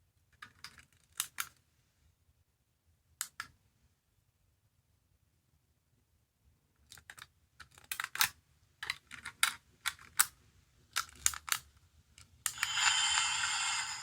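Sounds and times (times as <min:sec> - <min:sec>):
plastic toy clicks: 0:11.0 - 0:11.6.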